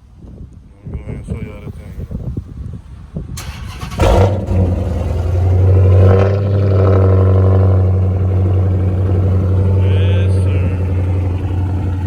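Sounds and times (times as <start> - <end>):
car engine starting and idling: 3.4 - 12.0.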